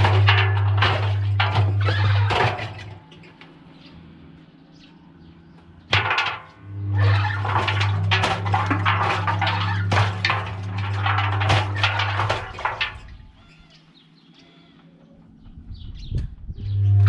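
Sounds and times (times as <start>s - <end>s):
washing machine motor hum: 0.0s - 3.2s, 5.7s - 13.4s
objects tumbling in washing machine: 0.0s - 3.4s, 5.8s - 13.6s.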